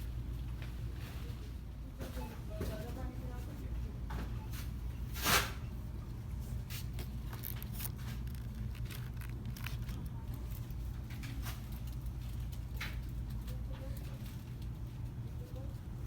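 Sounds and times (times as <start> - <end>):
steady low hum: 3.0 - 16.0
light clicks and rustles: 6.6 - 15.8.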